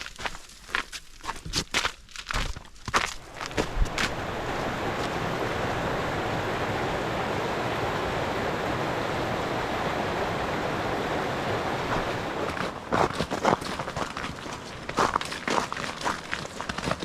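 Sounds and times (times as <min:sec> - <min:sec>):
footsteps crunching in snow: 0:00.0 - 0:05.5, 0:11.9 - 0:17.0
creek water flowing: 0:03.0 - 0:17.0.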